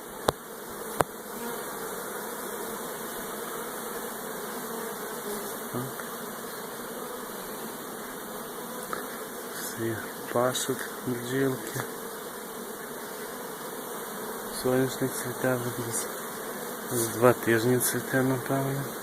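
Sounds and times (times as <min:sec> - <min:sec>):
bees humming: 0:00.0 - 0:19.0.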